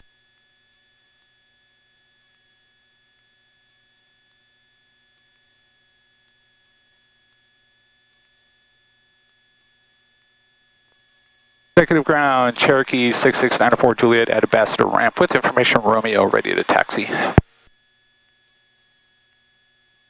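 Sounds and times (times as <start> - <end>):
electrical interference whine: 11.8 - 17.4
faint steady hum: 11.8 - 17.4.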